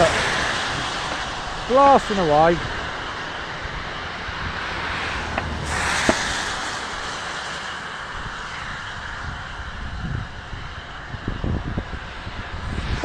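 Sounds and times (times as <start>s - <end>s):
vehicle passing: 0.0s - 9.4s
roadside traffic noise: 0.0s - 13.0s.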